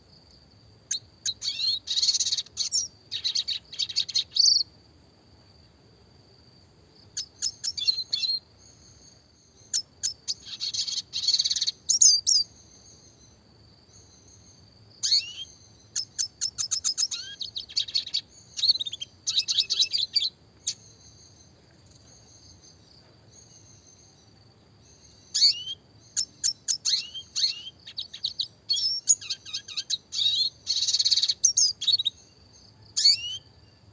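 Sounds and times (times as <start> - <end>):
bird chirping and trilling: 0.9 - 4.7, 7.2 - 13.3, 14.0 - 21.5, 24.8 - 32.4, 33.0 - 33.5.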